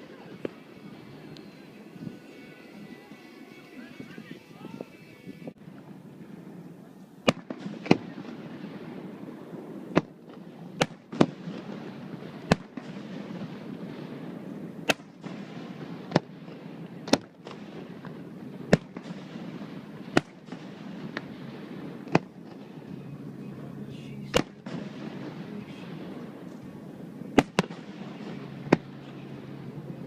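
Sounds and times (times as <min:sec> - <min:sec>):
low background rumble: 0:05.3 - 0:30.0
fireworks bangs: 0:07.2 - 0:30.0.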